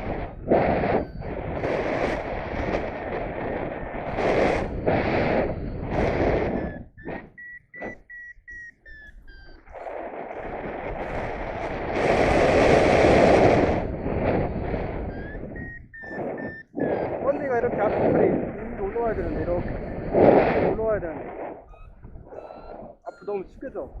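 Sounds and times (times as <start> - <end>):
variometer short high beeps: 0.0 - 2.9, 3.7 - 11.2, 13.5 - 24.0
wind on microphone: 0.0 - 24.0.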